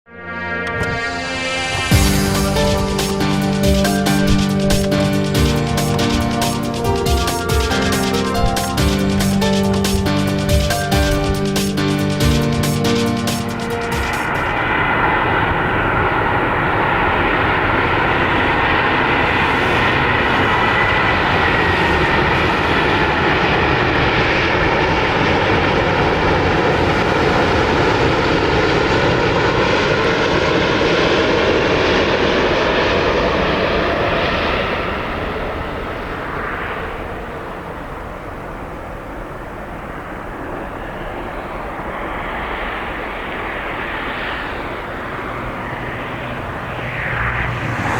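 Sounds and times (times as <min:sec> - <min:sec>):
jet engines roaring and whining: 0:00.3 - 0:47.9.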